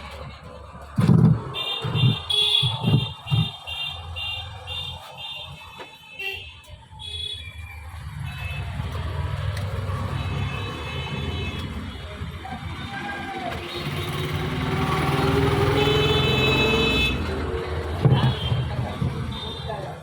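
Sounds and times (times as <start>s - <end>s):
vehicle engine rumbling: 0.0s - 5.8s, 6.6s - 20.0s
vehicle horn beeping rapidly: 1.5s - 7.5s, 10.1s - 12.0s, 13.6s - 17.4s, 18.0s - 19.8s.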